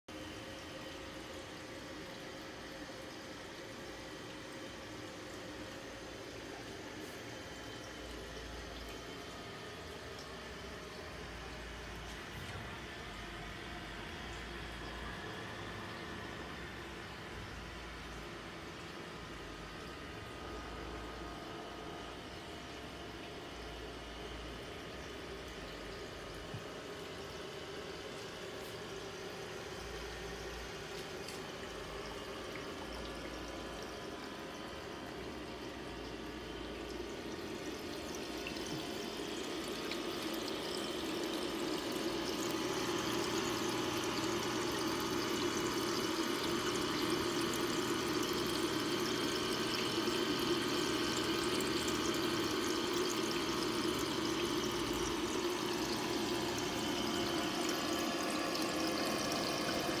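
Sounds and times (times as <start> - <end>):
low steady hum: 0.1 - 60.0
aquarium waterfall splashing: 24.6 - 60.0.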